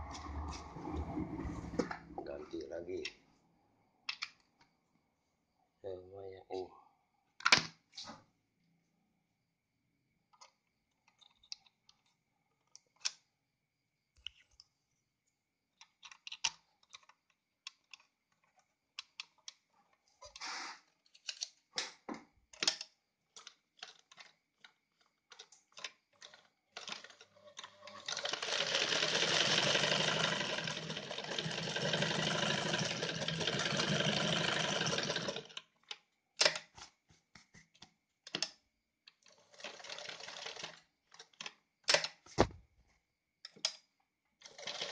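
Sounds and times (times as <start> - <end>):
sewing machine clicks and knocks: 26.2 - 35.7, 44.4 - 44.9
sewing machine running: 27.8 - 35.6, 39.5 - 40.8, 44.5 - 44.9.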